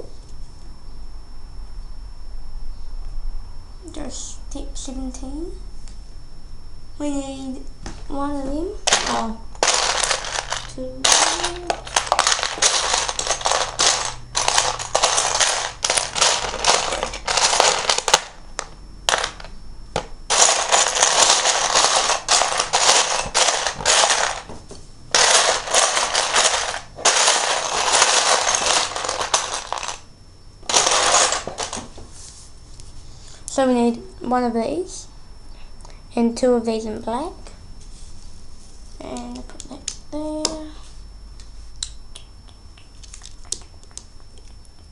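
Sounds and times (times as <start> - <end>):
plastic bricks clattering: 8.9 - 24.5, 25.2 - 30.0, 30.7 - 31.9.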